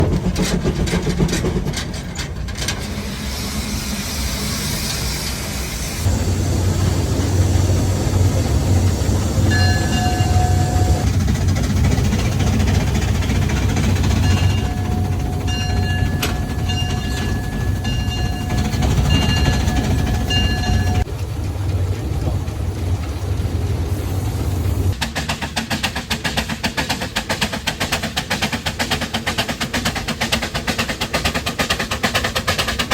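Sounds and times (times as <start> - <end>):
rapid steam chuffing: 0.0 - 32.9
steam truck running: 0.0 - 32.9
steam whistle blowing: 9.4 - 11.1.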